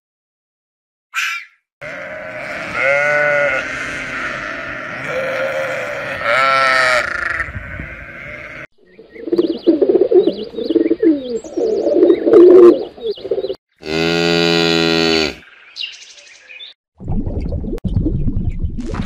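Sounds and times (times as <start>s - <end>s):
calf mooing: 1.8s - 8.7s, 13.8s - 15.4s
sheep bleating: 1.8s - 8.7s
pigeons cooing: 7.1s - 13.6s.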